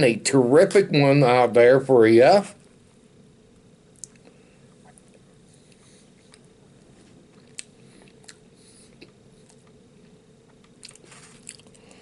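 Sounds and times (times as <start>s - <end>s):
quiet chewing: 3.9s - 12.0s.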